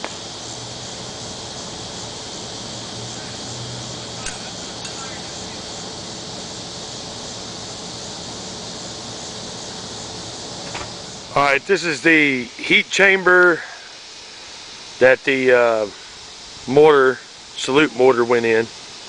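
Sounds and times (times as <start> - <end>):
background hiss: 0.0 - 19.0
light click: 4.2 - 5.0.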